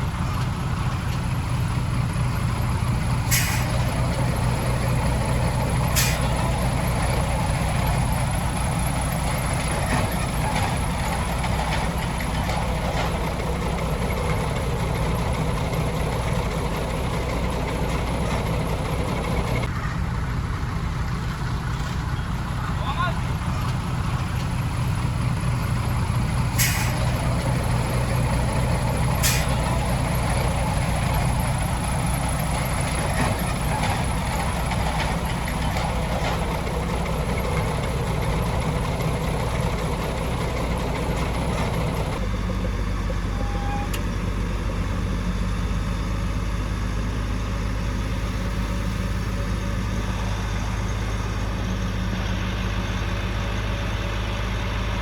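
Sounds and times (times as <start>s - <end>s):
heavy diesel engine rumbling: 0.0s - 55.0s
sharp hisses: 3.3s - 3.8s, 26.6s - 27.1s.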